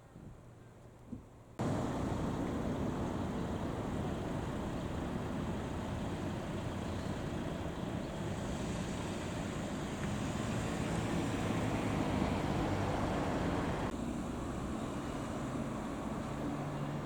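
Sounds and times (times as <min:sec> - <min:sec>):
road or wind noise: 0:00.0 - 0:17.0
fire truck engine running: 0:01.6 - 0:13.9.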